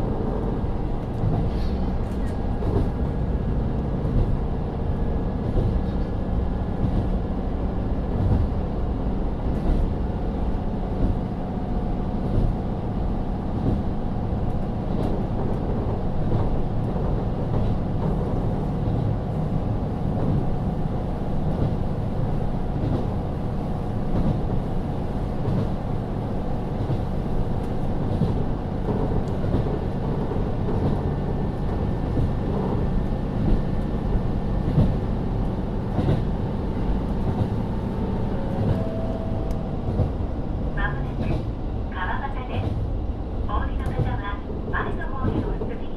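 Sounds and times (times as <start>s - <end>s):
wheels rumbling on rail: 0.0s - 45.9s.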